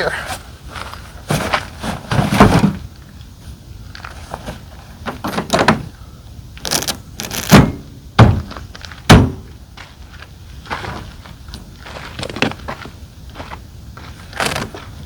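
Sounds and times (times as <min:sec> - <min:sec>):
knocks and thuds of parts: 0:01.3 - 0:02.9, 0:05.0 - 0:06.0, 0:06.7 - 0:09.6.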